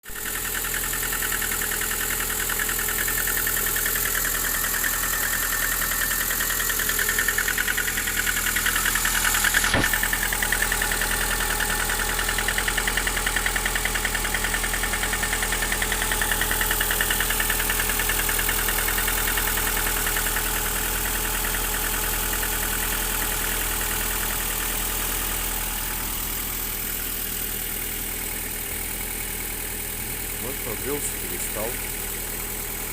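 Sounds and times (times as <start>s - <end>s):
car engine idling with knock: 0.0s - 32.9s
sharp click: 9.6s - 10.0s.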